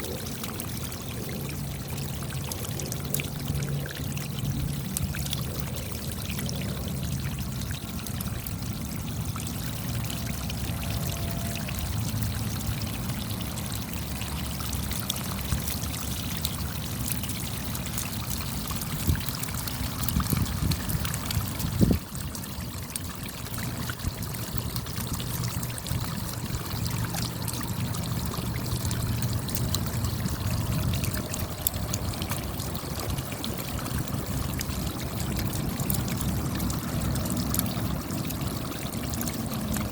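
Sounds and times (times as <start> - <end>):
low rumble: 25.2 - 38.0.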